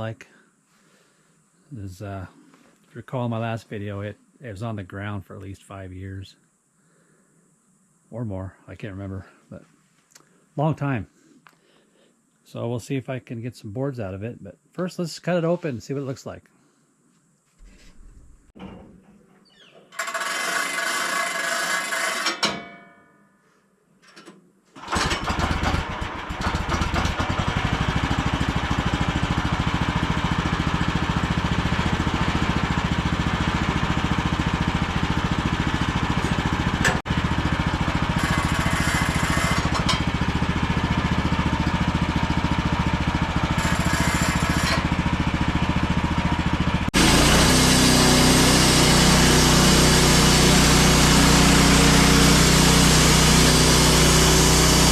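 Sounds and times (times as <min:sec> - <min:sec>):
sawmill gas engine running: 0:24.8 - 0:54.9.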